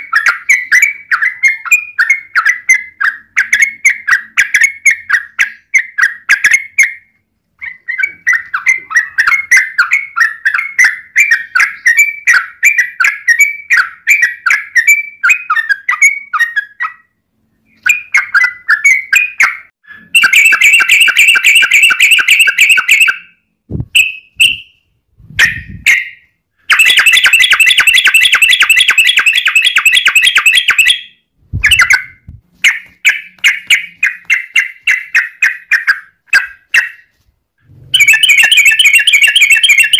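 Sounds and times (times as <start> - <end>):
bird rapid chattering: 17.7 - 23.2, 25.4 - 37.1, 37.9 - 39.9
bird song bubbly notes: 26.7 - 31.0, 38.0 - 39.9.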